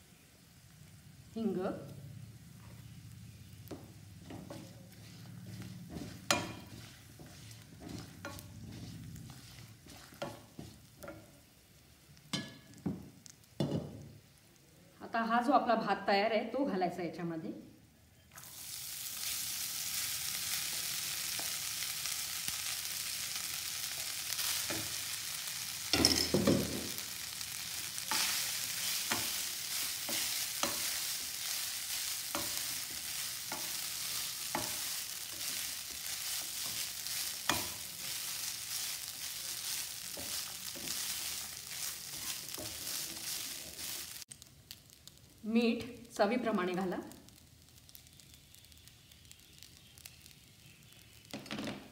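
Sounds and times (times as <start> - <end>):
rice sizzling in hot oil: 0.0 - 16.6, 18.1 - 51.9
spatula scraping and tapping pan: 3.6 - 11.5, 12.2 - 14.1, 23.9 - 44.4.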